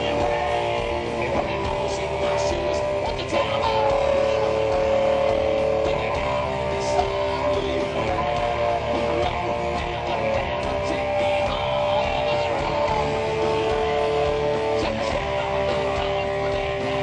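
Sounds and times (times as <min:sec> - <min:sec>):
electric guitar notes: 0:00.0 - 0:17.0
live rock band playing: 0:00.0 - 0:17.0.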